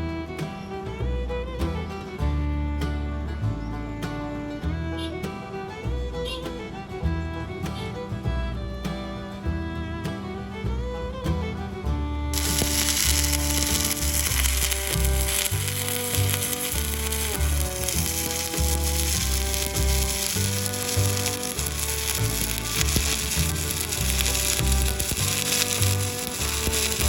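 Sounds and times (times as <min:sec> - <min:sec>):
background music: 0:00.0 - 0:27.0
crackling sizzling welding arc: 0:12.4 - 0:27.0.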